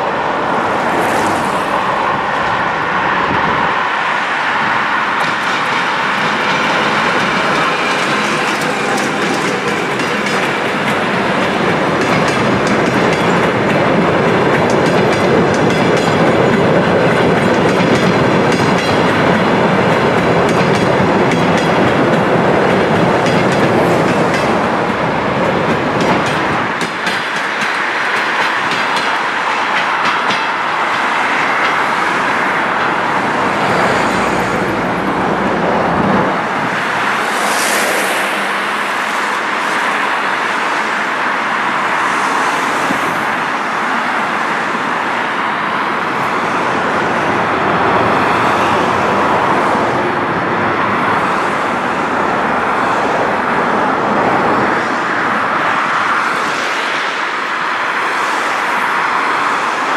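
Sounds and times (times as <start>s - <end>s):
road traffic noise: 0.0s - 59.9s
train rolling rumble: 0.0s - 59.9s
train wheels clicking over rail joints: 5.1s - 34.5s.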